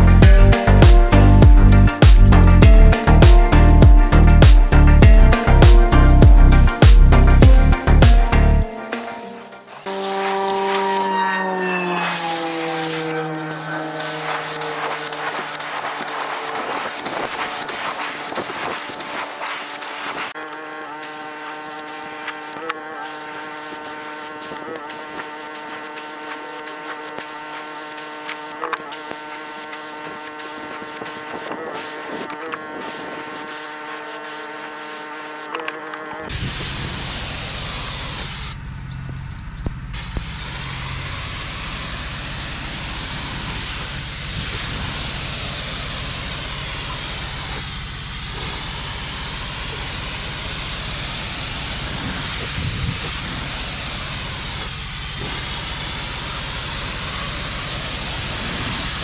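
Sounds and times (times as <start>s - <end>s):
pressure washer running: 0.0s - 38.6s, 40.0s - 59.0s
water spray hissing: 0.0s - 38.6s, 40.0s - 59.0s.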